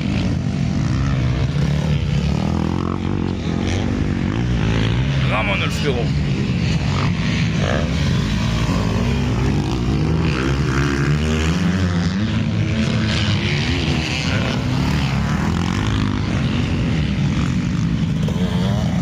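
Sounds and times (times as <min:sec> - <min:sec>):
motocross bike engines revving: 0:00.0 - 0:19.0.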